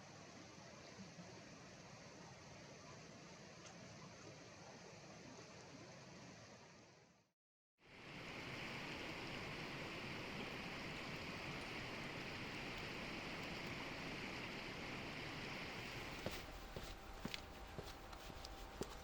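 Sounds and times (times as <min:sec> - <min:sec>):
stream flowing over stones: 0:08.0 - 0:16.8.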